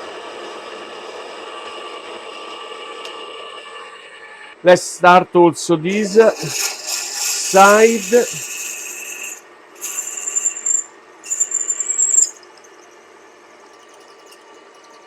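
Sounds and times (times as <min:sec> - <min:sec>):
milling drill cutting metal: 0:05.9 - 0:12.4.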